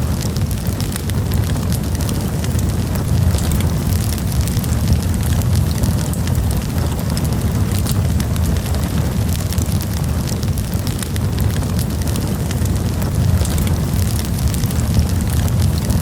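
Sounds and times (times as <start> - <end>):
campfire crackling and popping: 0.0 - 16.0
low rumble: 0.0 - 16.0.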